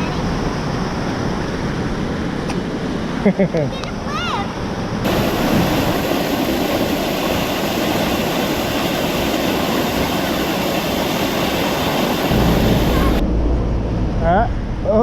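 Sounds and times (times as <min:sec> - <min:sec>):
river water rushing: 0:04.6 - 0:13.2
low rumble: 0:12.3 - 0:15.0.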